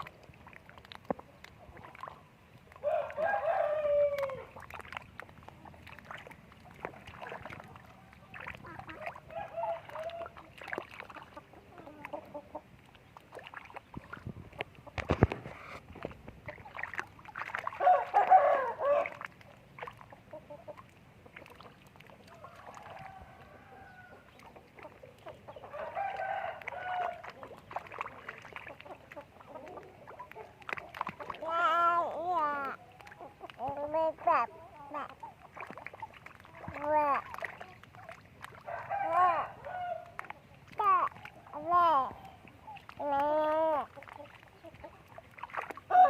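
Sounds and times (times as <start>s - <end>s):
chickens clucking: 5.2s - 17.2s, 17.8s - 46.0s.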